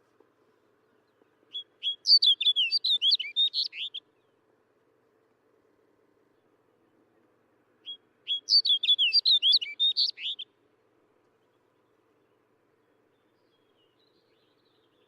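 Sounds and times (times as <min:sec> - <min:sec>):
bird singing warbled phrase: 0:01.5 - 0:04.0, 0:07.8 - 0:10.5.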